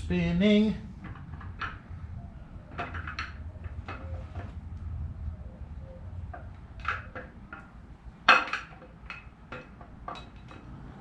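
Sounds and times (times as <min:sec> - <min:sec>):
light metallic clinks and knocks: 0:06.3 - 0:10.8.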